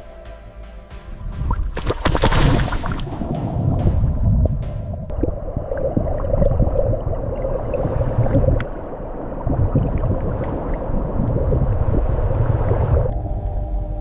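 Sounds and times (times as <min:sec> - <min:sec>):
low rumble: 0:00.0 - 0:14.0
water gurgling: 0:05.1 - 0:13.2.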